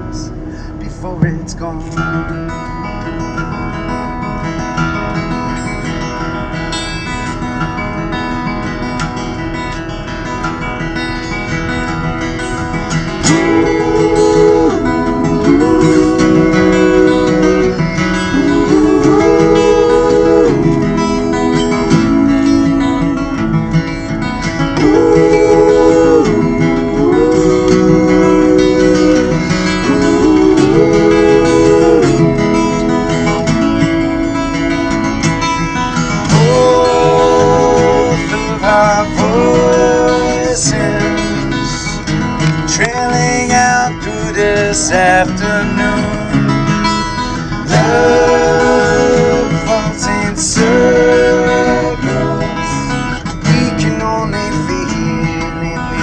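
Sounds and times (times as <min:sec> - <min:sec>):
acoustic guitar: 0:00.0 - 0:56.0
sliding lead melody: 0:02.2 - 0:42.5.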